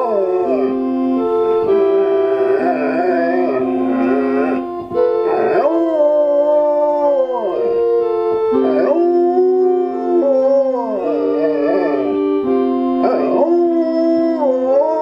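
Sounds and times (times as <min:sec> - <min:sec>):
dog howling: 0:00.0 - 0:15.0
hymn chords: 0:00.0 - 0:15.0.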